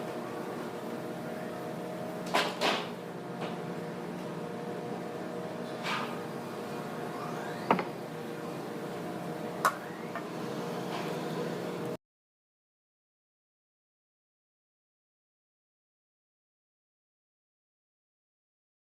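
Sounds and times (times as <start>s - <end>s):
machinery humming: 3.0s - 12.0s.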